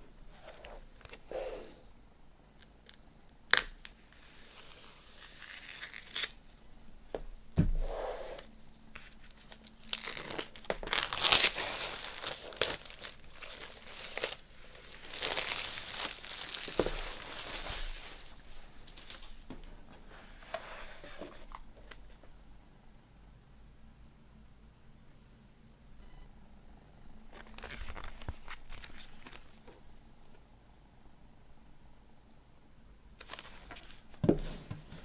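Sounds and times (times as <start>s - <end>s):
packaging tearing and crinkling: 4.4s - 6.4s, 9.3s - 19.4s
thump: 7.6s - 7.9s.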